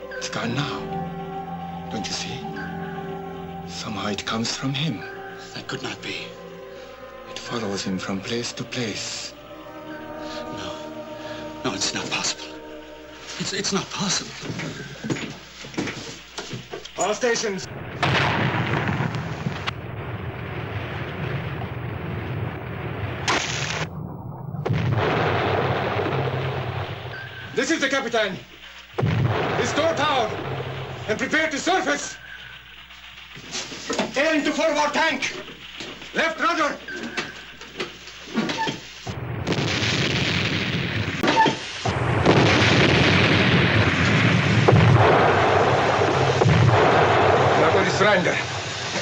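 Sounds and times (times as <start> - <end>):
sharp blast: 0.0 - 14.0, 17.7 - 27.6, 28.9 - 32.8, 39.0 - 49.0
heavy explosion rumble: 17.7 - 27.6, 29.0 - 31.8, 39.1 - 49.0
compressed air rushing hiss: 41.5 - 42.0.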